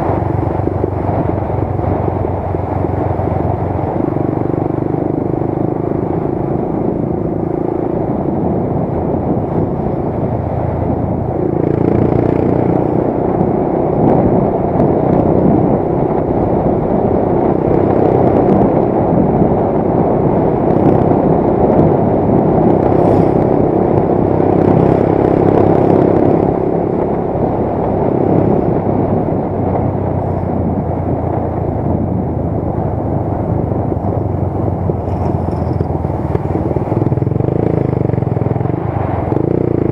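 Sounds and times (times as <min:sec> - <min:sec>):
motorcycle engine running: 0:00.0 - 0:39.9
rushing noise: 0:21.8 - 0:39.9.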